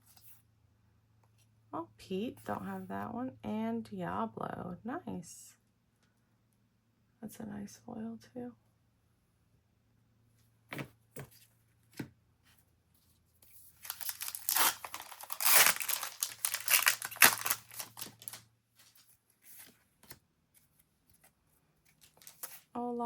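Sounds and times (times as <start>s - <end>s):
foil wrapper crinkling and tearing: 13.8s - 19.0s, 22.0s - 22.7s.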